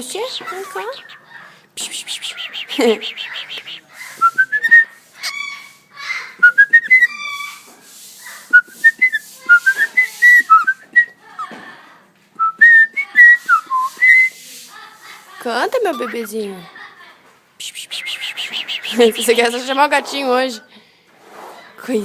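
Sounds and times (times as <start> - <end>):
cockatiel hissing: 0.1 - 5.8, 17.6 - 19.7.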